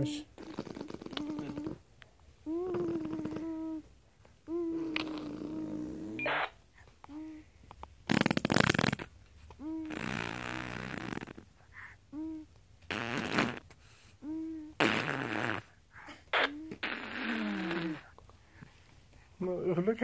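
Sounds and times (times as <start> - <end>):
mouth fart noises: 0.4 - 1.8, 4.8 - 6.6, 8.0 - 11.6, 12.8 - 18.2
squeaky vocal chirps: 14.2 - 18.1.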